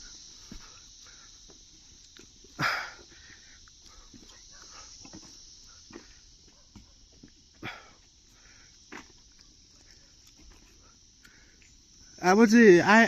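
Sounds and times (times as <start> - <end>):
footsteps on trail: 0.0 - 12.0
high-pitched insect drone: 0.0 - 13.0.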